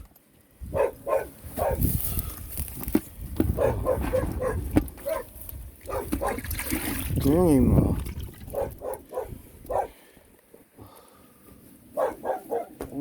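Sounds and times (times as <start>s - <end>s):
dog barking and yelping: 0.7s - 1.9s, 3.5s - 5.3s, 5.9s - 6.4s, 8.5s - 10.0s, 12.0s - 13.0s.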